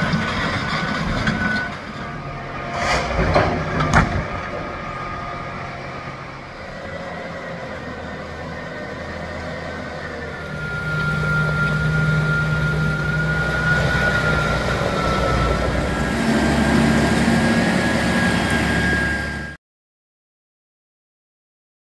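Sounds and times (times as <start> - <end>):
diesel excavator running: 0.0 - 19.6
high machine whine: 10.0 - 19.6.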